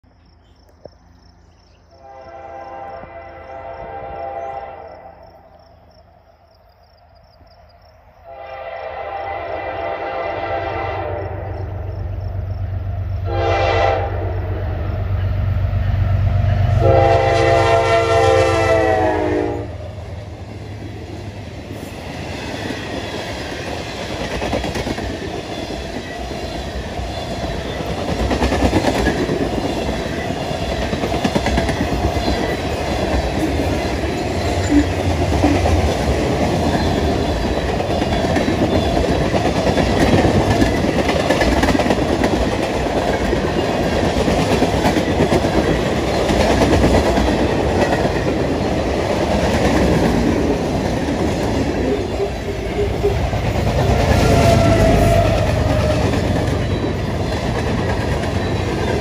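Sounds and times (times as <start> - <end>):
train horn blasts: 1.9 - 5.4, 8.2 - 11.9, 13.2 - 20.1, 53.8 - 56.7.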